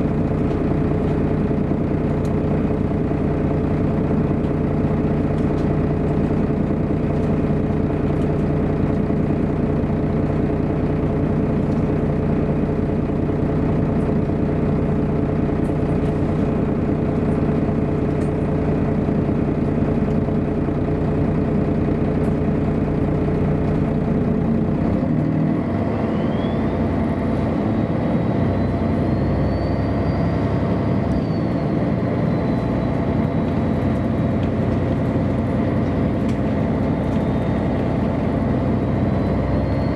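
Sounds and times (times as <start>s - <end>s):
bus engine running: 0.0s - 39.9s
engine whine rising in pitch: 21.6s - 39.9s.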